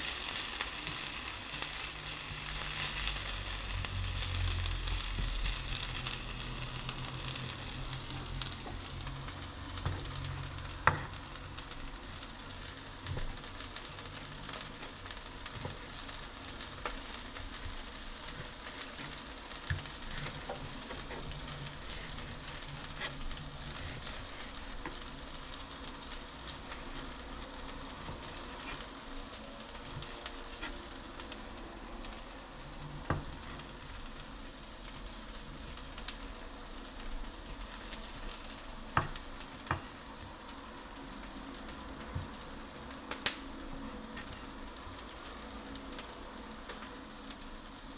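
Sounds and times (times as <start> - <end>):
food sizzling in a pan: 0.0 - 47.9
stirring knocks: 13.0 - 27.2.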